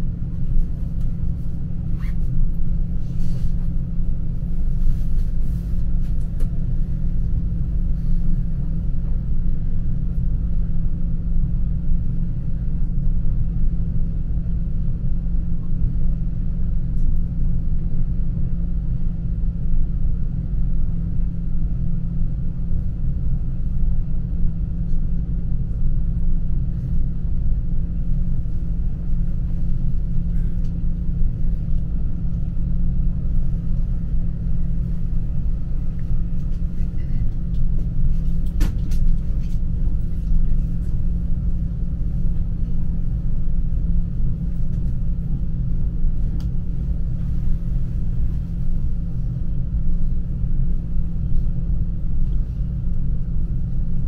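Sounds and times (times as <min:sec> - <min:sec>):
electric train rumble: 0:00.0 - 0:54.0.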